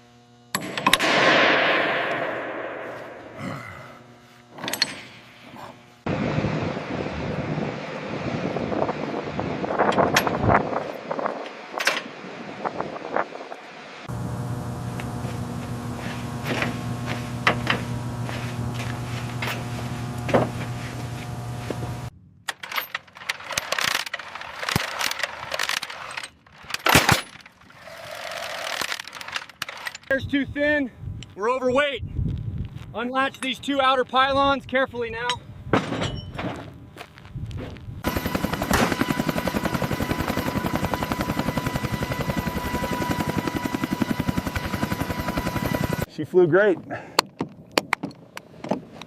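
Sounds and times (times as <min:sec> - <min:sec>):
machine hum: 0:00.0 - 0:30.1, 0:36.6 - 0:46.1
turbine whine: 0:00.0 - 0:46.1
helicopter rotor beat: 0:05.5 - 0:13.1, 0:14.0 - 0:22.1, 0:38.0 - 0:46.1.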